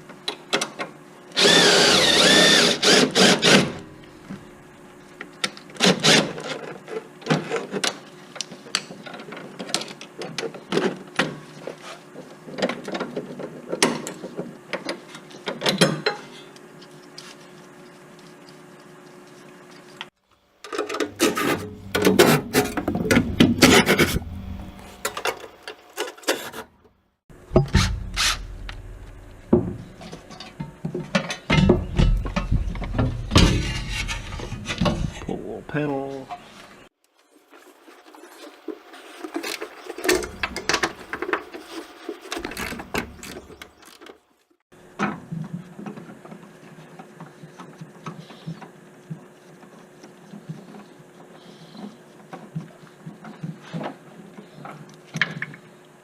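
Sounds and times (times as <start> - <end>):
power tool running: 1.4 - 3.9, 21.1 - 25.6
hand tools clanking on metal: 29.6 - 35.3.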